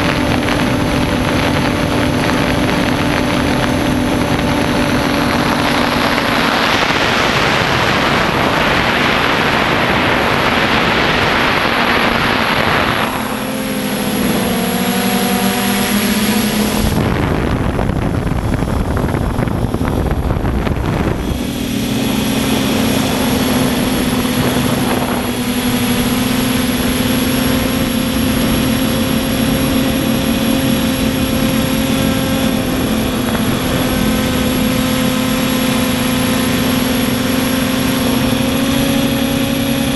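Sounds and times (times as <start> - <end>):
low rumble: 0.0 - 26.2
drone propellers whining: 0.0 - 39.9
rushing noise: 0.0 - 39.9.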